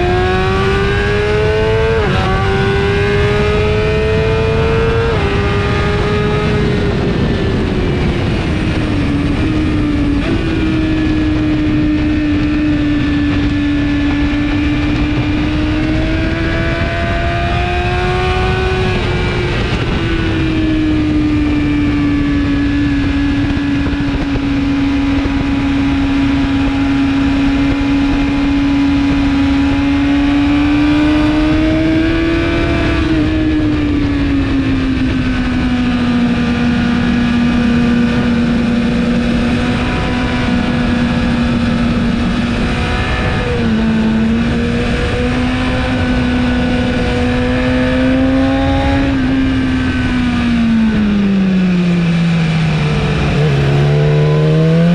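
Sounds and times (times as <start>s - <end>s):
motorcycle engine at high revs: 0.0s - 54.9s
wind noise: 0.0s - 54.9s.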